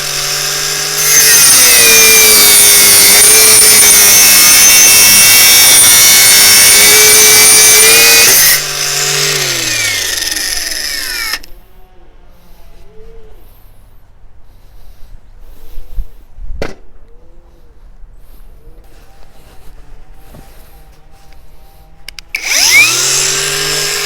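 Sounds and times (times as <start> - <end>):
angle grinder cutting steel: 0.0 - 11.5, 22.1 - 24.0
grinder motor winding down: 0.0 - 11.5, 22.2 - 24.0.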